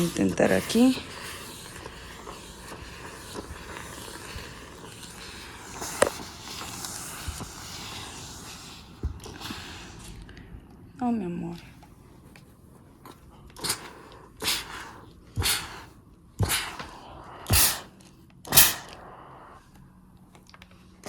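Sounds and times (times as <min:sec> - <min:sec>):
brush rubbing on fabric: 0:00.0 - 0:10.2, 0:17.5 - 0:17.9, 0:18.5 - 0:18.9
garment steamer hissing: 0:00.0 - 0:10.3, 0:13.6 - 0:19.6.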